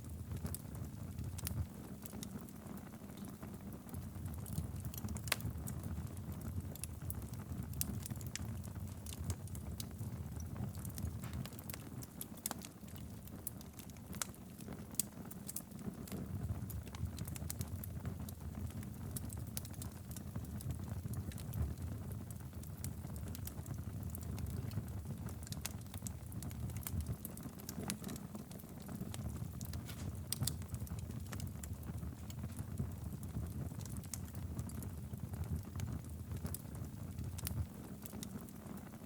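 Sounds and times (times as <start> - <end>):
fire crackles and pops: 0.0 - 39.0
rumble of fire flames: 0.0 - 39.0.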